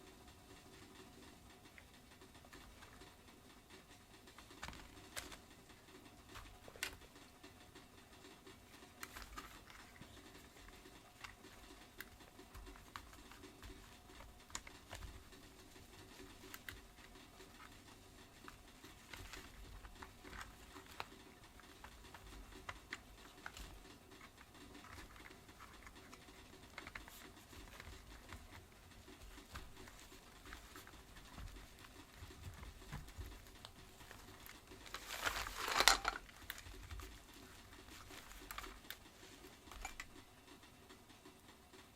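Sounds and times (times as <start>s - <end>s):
plastic parts clicking and tapping: 0.8s - 41.1s
plastic parts clattering: 8.8s - 40.3s.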